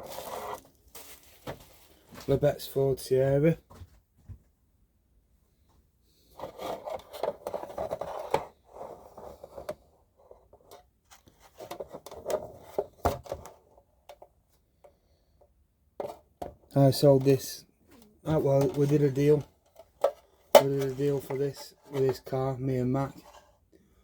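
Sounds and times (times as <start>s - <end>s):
packaging rustling and scraping: 0.0s - 2.5s, 6.3s - 9.8s, 17.3s - 23.6s.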